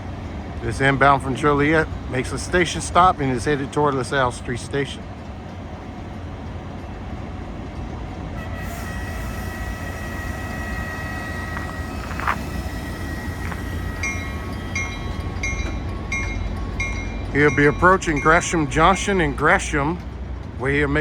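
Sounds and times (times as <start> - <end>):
diesel locomotive rumbling: 0.0 - 21.0
high steady tone: 8.4 - 18.2
bell ringing: 9.1 - 18.4.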